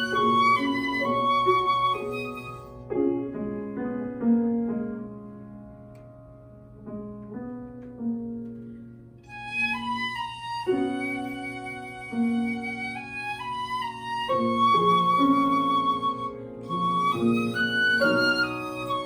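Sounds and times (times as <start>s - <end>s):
flute melody: 0.0s - 2.9s, 9.3s - 19.0s
piano playing: 0.0s - 19.0s.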